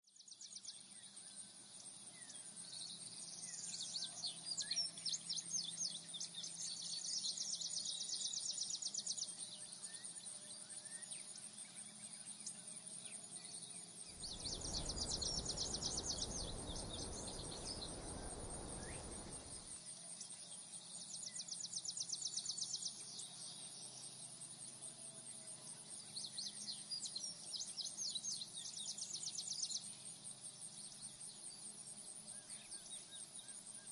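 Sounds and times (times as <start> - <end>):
bird calls: 14.2 - 19.7
fast insect chirping: 14.2 - 19.8
high insect drone: 14.2 - 19.8
rush of noise: 14.2 - 19.8.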